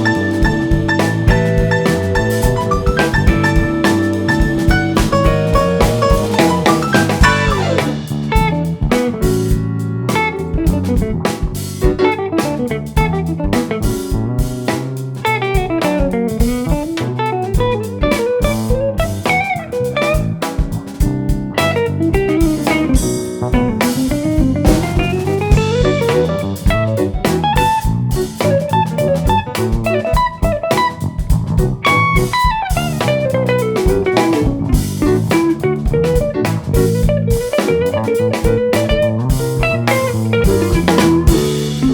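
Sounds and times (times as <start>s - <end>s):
electric guitar runs: 0.0s - 9.5s, 31.7s - 41.9s
jazz fusion band playing: 0.0s - 41.9s.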